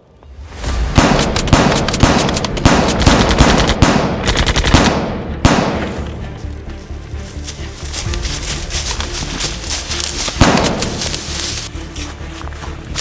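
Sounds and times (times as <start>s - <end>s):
rapid automatic gunfire: 1.2s - 5.0s.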